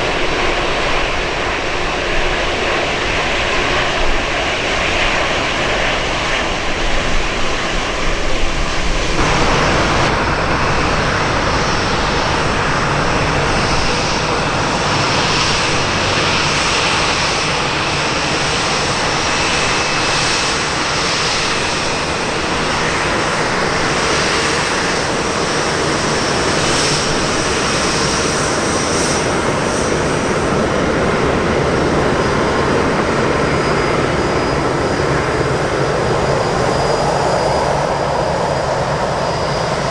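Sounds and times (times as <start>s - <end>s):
jet airliner engines: 0.0s - 39.9s.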